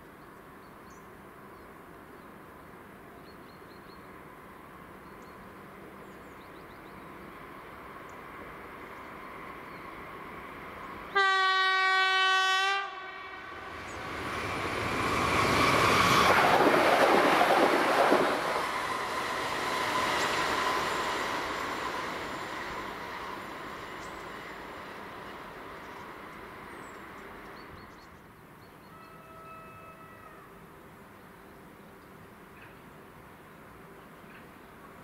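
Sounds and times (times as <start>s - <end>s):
train rolling past: 4.1s - 30.7s
train horn blast: 11.1s - 13.8s, 28.9s - 30.5s.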